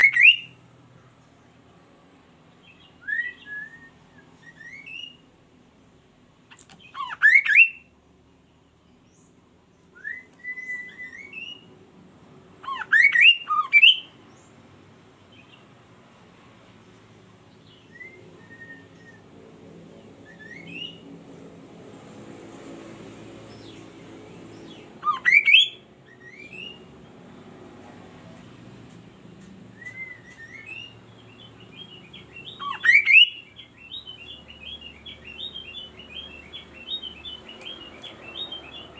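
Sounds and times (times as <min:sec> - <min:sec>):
bird whistling rising notes: 0:03.0 - 0:05.2, 0:07.0 - 0:07.8, 0:10.0 - 0:11.7, 0:12.6 - 0:14.1, 0:17.9 - 0:19.3, 0:20.2 - 0:21.1, 0:25.0 - 0:26.8, 0:29.8 - 0:38.9.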